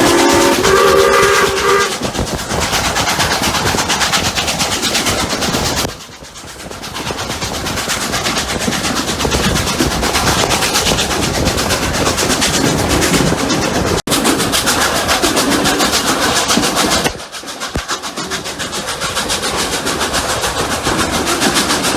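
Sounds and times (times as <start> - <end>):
steam locomotive whistle chord: 0.0 - 2.0
steam locomotive exhaust beat: 0.0 - 21.9
train running noise: 0.0 - 21.9.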